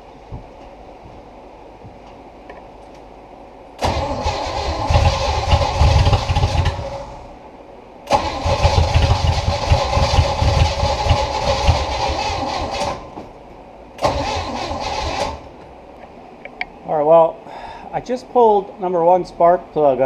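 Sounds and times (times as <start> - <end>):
starter cranking engine: 3.8 - 7.2, 8.1 - 13.1, 14.0 - 15.5.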